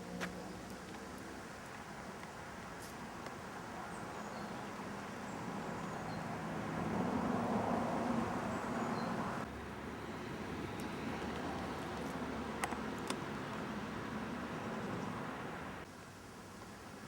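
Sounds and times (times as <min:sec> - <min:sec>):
vehicle passing: 0:04.7 - 0:15.9.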